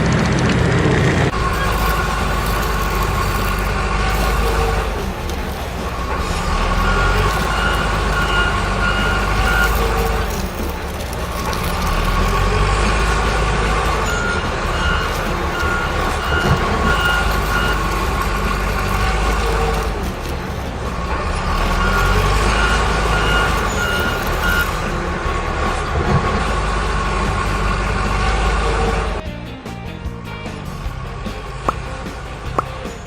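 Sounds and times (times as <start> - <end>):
truck engine rumble: 0.0 - 33.0
reversing beeper beeps: 1.3 - 20.3, 21.2 - 25.4.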